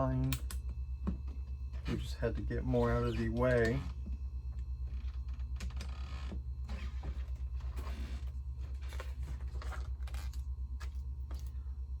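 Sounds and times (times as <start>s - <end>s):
low pulsing hum: 0.0s - 12.0s.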